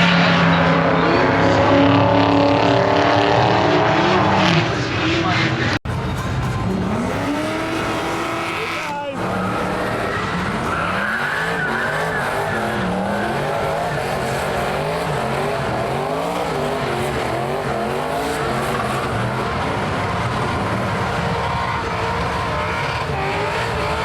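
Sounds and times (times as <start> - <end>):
car engine revving high: 0.0 - 5.8, 6.6 - 24.0
spinning tyres hissing: 6.7 - 24.0.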